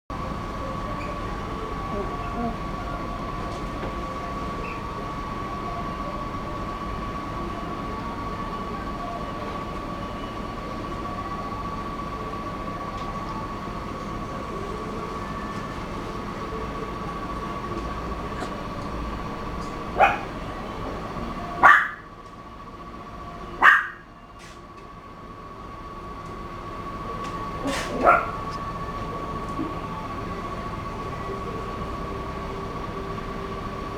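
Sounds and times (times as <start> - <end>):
background hum: 13.6 - 24.6, 26.2 - 31.8
puppy barking: 18.3 - 18.8, 19.5 - 20.4, 21.6 - 22.1, 23.6 - 24.1, 27.6 - 28.7.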